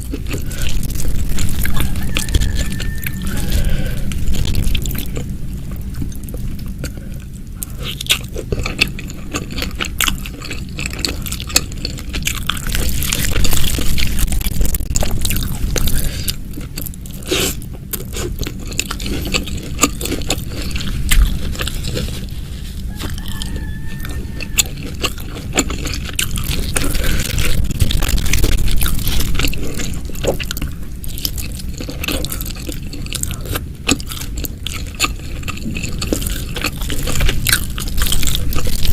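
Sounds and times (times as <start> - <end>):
crunching and chewing fried chicken: 0.0 - 38.9.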